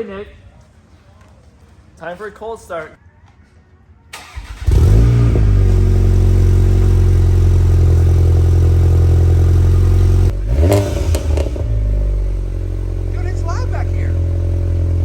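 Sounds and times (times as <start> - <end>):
engine cranking: 4.2 - 5.2
car engine revving and idling: 4.4 - 15.0.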